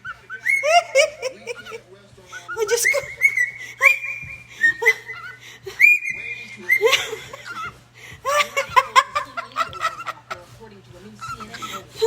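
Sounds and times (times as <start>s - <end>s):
pet bird whistling: 0.0s - 1.7s, 2.3s - 7.0s.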